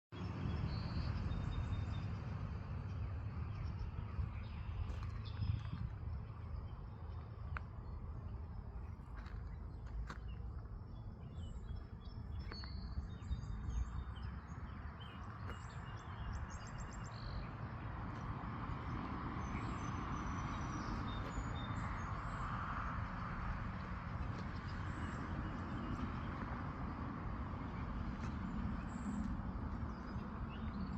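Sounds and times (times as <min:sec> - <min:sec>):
small birds chirping: 0:03.5 - 0:22.5.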